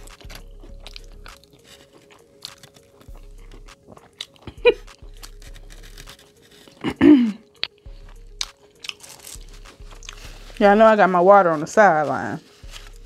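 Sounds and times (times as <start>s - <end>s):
chewing and smacking: 0.0s - 10.6s
person humming mmm: 3.1s - 6.0s, 6.6s - 8.5s.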